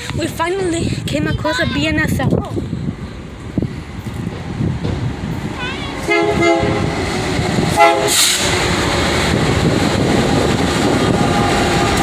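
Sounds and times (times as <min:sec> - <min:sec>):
train rumble: 0:00.0 - 0:12.0
locomotive horn blasts: 0:06.0 - 0:06.9, 0:07.7 - 0:08.4.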